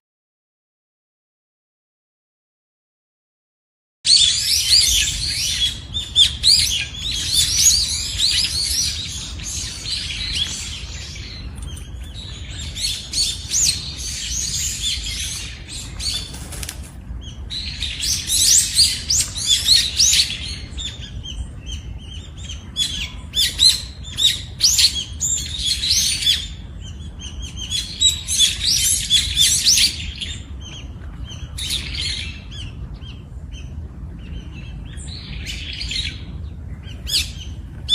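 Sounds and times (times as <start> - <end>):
birds chirping and twittering: 4.1 - 37.9
low steady rumble: 4.3 - 37.9.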